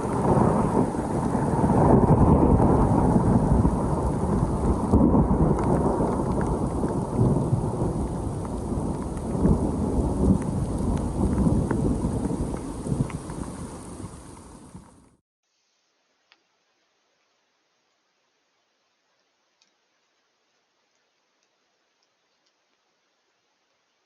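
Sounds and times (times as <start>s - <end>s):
raindrops ticking: 0.0s - 15.1s, 20.8s - 22.8s
rolling thunder: 0.0s - 15.1s
rain falling: 0.0s - 15.2s.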